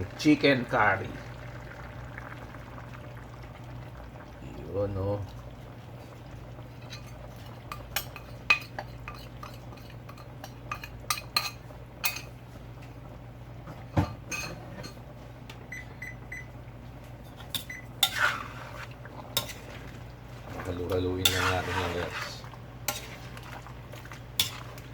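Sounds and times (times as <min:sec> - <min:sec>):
spoon scraping a cooking pot: 0:06.8 - 0:12.3, 0:17.2 - 0:24.9.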